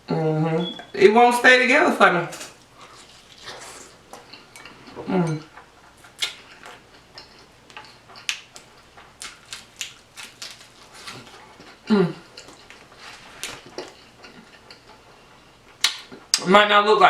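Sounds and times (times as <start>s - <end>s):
person humming: 11.9s - 12.2s.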